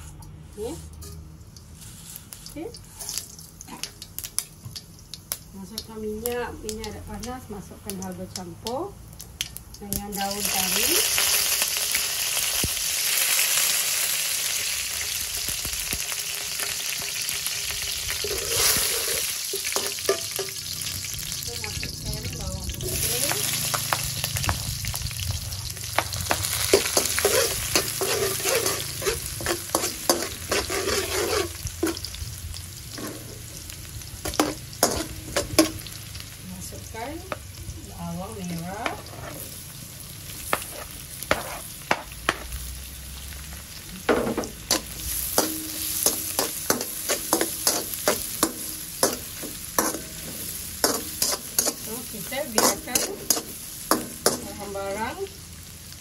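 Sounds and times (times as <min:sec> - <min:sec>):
onions sizzling in hot oil: 0:00.0 - 0:56.0
utensils scraping a metal pan: 0:18.2 - 0:20.6, 0:26.3 - 0:32.1, 0:34.3 - 0:35.8, 0:40.5 - 0:41.7, 0:44.7 - 0:54.6.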